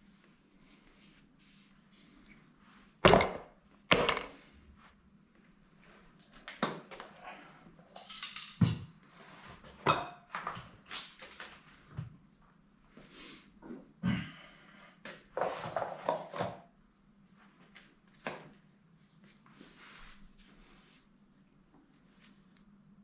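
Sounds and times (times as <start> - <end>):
metal clinks taps and scrapes: 7.9 - 8.9.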